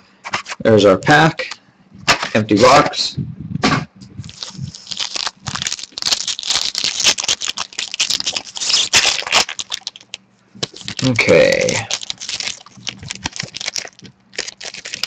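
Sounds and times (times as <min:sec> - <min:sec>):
wrapper crinkling and tearing: 0:04.2 - 0:15.0.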